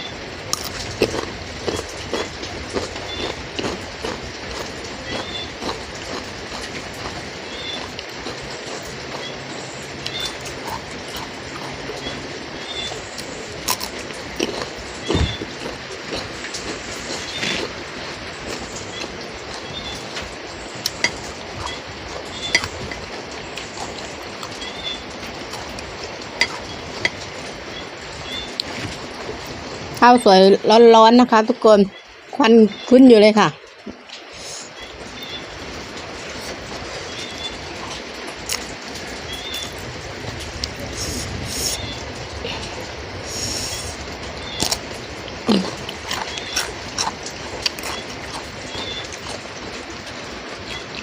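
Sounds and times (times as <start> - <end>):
falling rain hiss: 0.0 - 51.0
spoon clinking against plate: 26.4 - 27.2.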